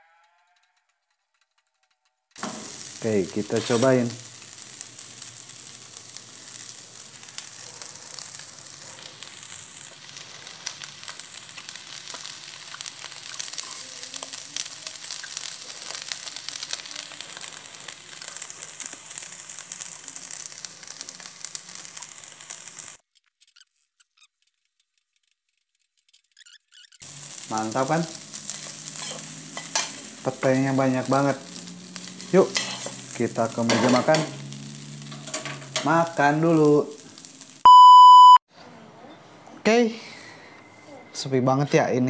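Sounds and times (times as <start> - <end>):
rice sizzling in a wok: 2.4 - 23.0, 27.0 - 38.4
spatula scraping and clicking: 32.6 - 33.0.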